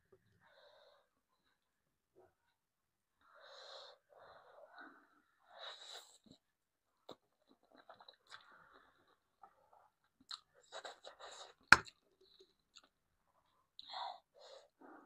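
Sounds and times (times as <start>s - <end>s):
chewing: 7.0s - 13.0s.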